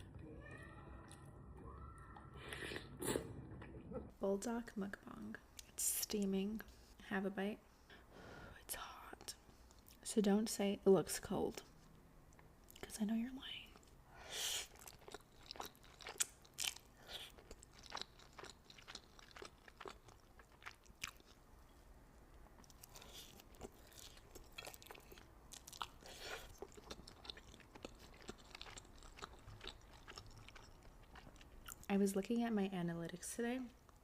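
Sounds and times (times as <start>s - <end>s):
wet chewing and slurping: 13.8s - 21.4s, 22.6s - 31.9s.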